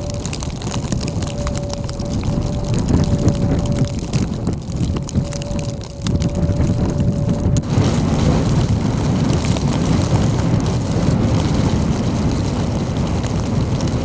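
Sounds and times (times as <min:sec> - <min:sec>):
faint steady tone: 0:00.0 - 0:07.6
gusty wind buffeting microphone: 0:00.0 - 0:14.0.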